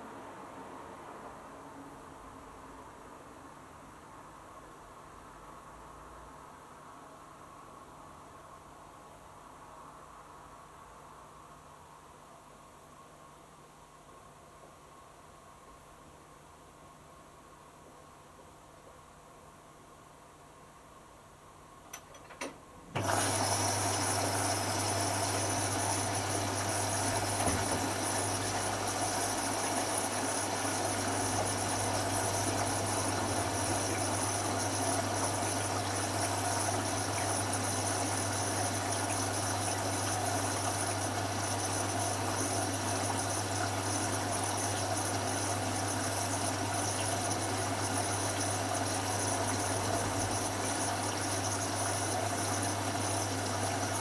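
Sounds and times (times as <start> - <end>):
washing machine drain pump humming: 21.8 - 54.0.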